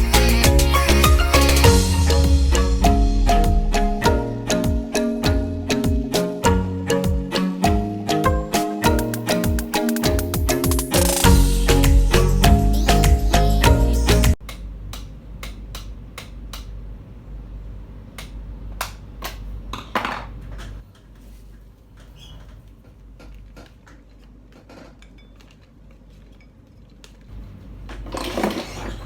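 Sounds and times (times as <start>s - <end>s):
low steady hum: 0.0s - 9.1s.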